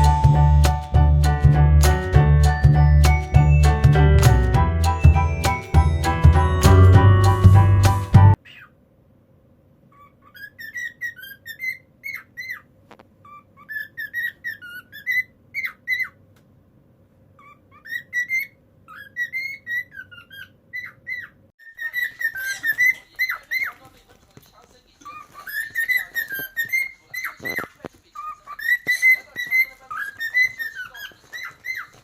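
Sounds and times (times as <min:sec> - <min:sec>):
cockatiel whistling and chirping: 0:10.4 - 0:12.6, 0:17.4 - 0:23.7, 0:28.6 - 0:32.0.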